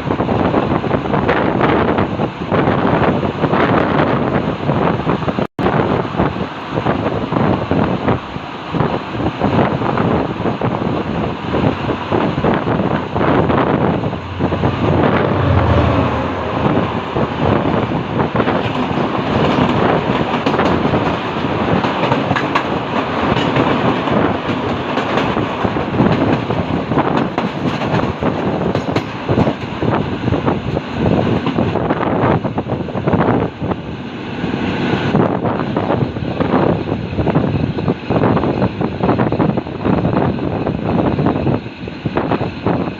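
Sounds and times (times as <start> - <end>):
train wheels clattering on rails: 16.6 - 33.7.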